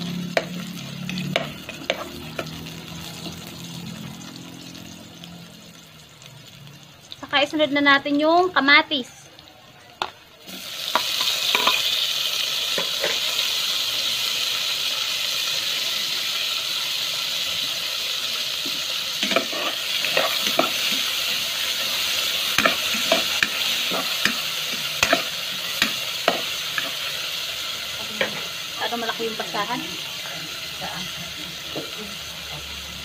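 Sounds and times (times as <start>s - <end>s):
tomatoes sizzling in hot oil: 0.0s - 33.0s
metal spoon scraping pot: 1.1s - 2.6s, 19.2s - 21.1s.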